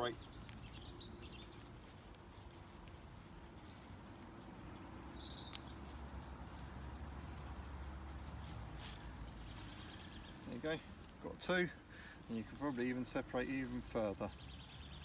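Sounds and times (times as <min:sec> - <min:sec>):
small bird chirping: 0:00.0 - 0:07.7, 0:08.9 - 0:10.9, 0:13.4 - 0:15.0.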